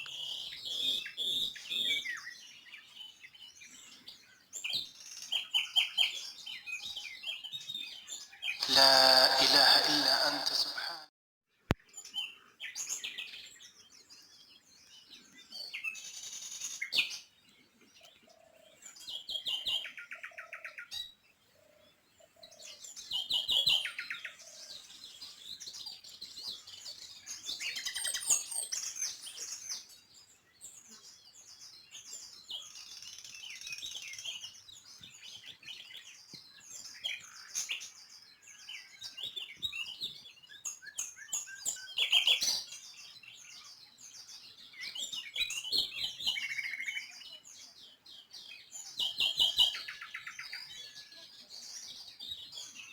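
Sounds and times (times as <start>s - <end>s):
small birds chirping: 11.8s - 52.9s.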